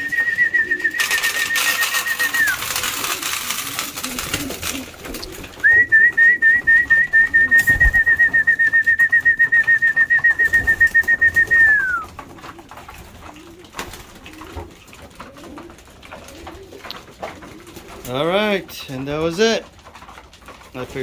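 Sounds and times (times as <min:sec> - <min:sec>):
high trilling whistle: 0:00.0 - 0:02.6, 0:05.6 - 0:12.0.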